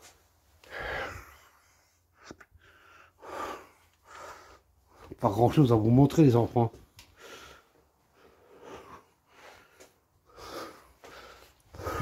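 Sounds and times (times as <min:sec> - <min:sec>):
person breathing heavily: 0:00.6 - 0:05.2, 0:07.1 - 0:12.0.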